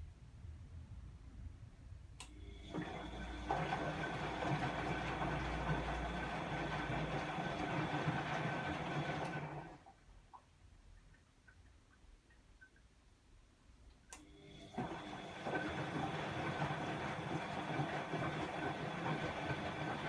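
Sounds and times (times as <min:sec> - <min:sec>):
washing machine running: 0:02.4 - 0:09.9, 0:14.3 - 0:20.0.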